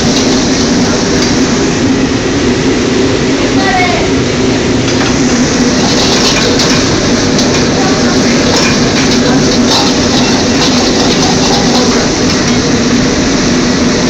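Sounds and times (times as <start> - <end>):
wok clattering: 0.0 - 1.6, 4.9 - 13.7
gas burner roaring: 0.0 - 14.0
kitchen exhaust fan: 0.0 - 14.0
food sizzling in wok: 5.0 - 13.7.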